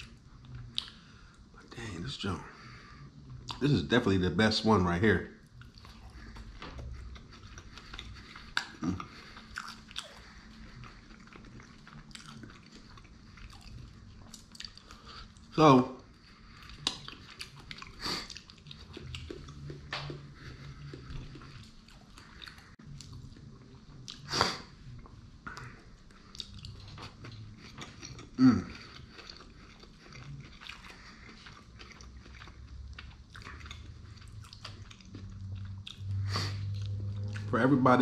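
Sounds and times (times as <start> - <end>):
wet chewing and mouth clicks: 0.0 - 1.5, 3.2 - 3.7, 5.4 - 37.5.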